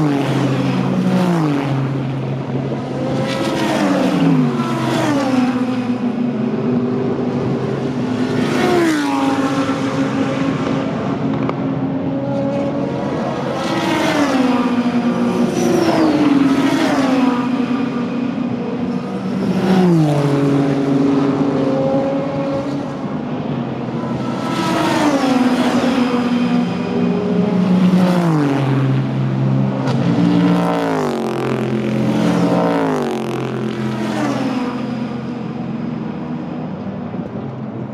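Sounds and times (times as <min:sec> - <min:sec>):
background engines: 0:00.0 - 0:37.9
race cars passing at speed: 0:00.0 - 0:37.9.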